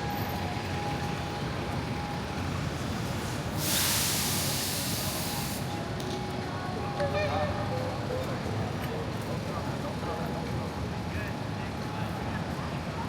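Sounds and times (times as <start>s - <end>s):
hiss of air or spray: 3.6s - 5.7s.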